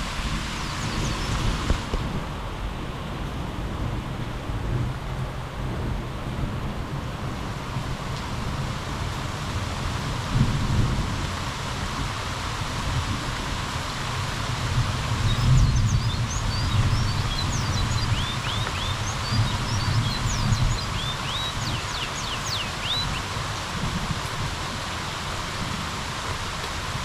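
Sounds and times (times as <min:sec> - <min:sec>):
steady rain falling: 0:00.0 - 0:27.0
birds chirping: 0:00.5 - 0:01.5, 0:15.3 - 0:23.4.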